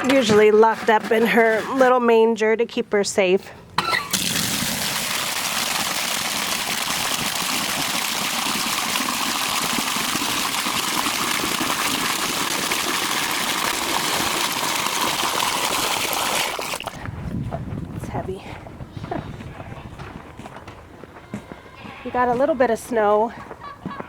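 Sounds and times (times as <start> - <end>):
tap water filling bucket: 3.8 - 17.1.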